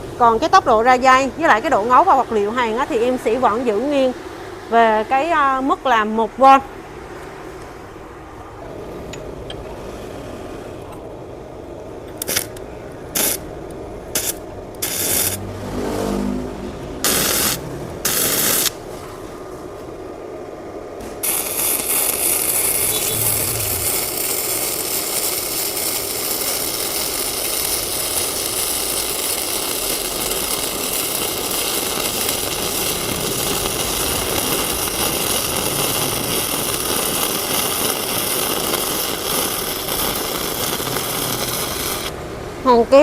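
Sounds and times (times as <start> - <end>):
welding arc crackling: 12.2 - 13.5, 14.1 - 15.4, 17.0 - 18.8, 21.0 - 42.2.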